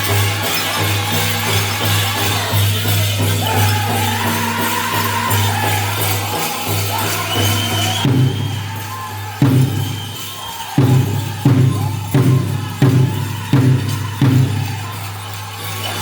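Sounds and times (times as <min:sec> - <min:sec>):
bells jingling: 0:00.0 - 0:16.0
bass drum beats: 0:07.9 - 0:15.0.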